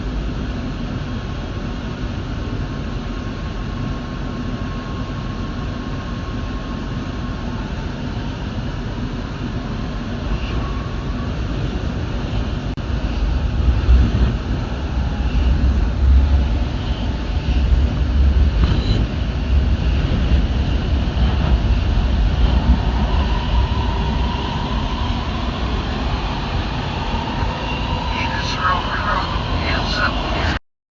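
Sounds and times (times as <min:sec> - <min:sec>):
faint steady whine: 0:00.0 - 0:30.6
subway train rumbling: 0:00.0 - 0:30.6.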